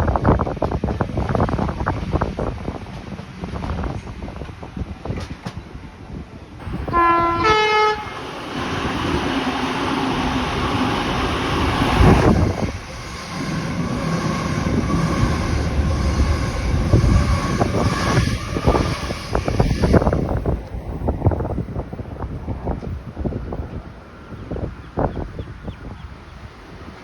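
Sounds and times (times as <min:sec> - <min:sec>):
train wheels rumbling on rails: 0:00.0 - 0:27.0
train horn notes: 0:06.6 - 0:09.6.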